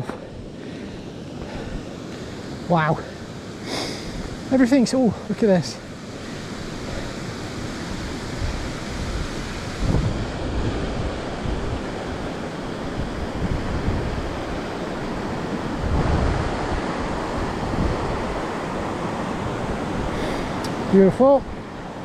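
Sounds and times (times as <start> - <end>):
falling water rushing: 0.6 - 22.0
wind buffeting microphone: 6.0 - 22.0.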